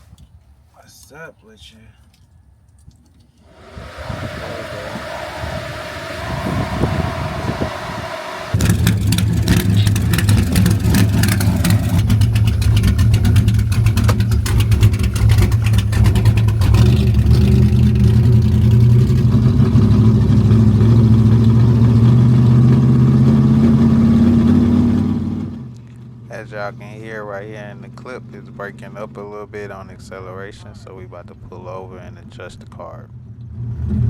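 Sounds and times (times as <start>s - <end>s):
car engine accelerating: 3.4s - 29.4s, 33.2s - 34.0s.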